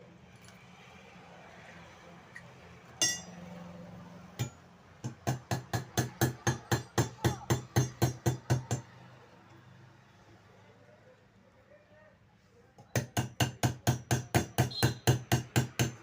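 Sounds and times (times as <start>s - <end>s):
hammer striking a rivet: 3.0s - 3.3s, 4.4s - 8.9s, 12.8s - 16.0s
ringing metallic clink: 3.0s - 3.4s.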